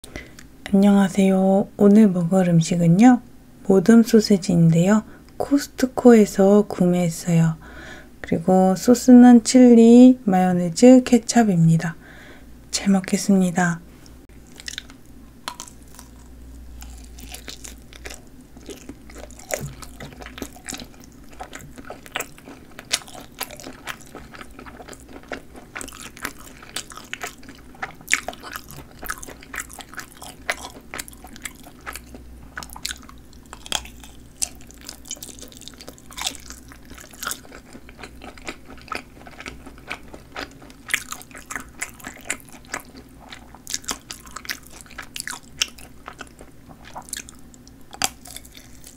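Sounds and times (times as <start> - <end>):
wet chewing with crisp snaps: 14.0 - 48.9
biting sausage: 14.5 - 48.9.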